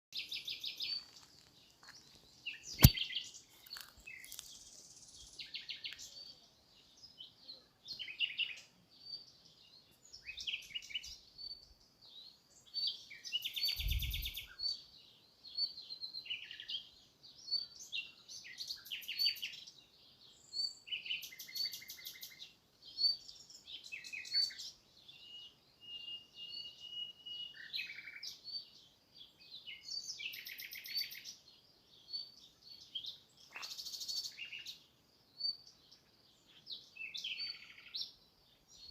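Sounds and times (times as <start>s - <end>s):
small birds chirping: 0.1s - 38.9s
sharp click: 2.8s - 3.0s.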